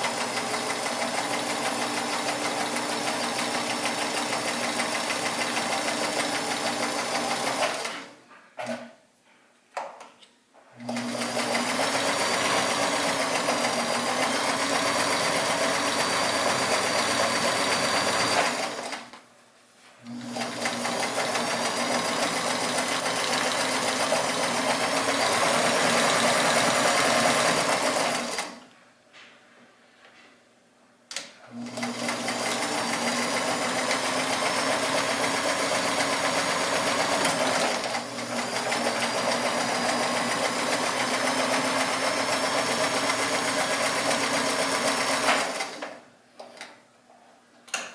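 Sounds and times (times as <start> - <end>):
sewing machine stitching: 0.0 - 8.8, 10.8 - 19.1, 20.1 - 28.6, 31.5 - 46.0.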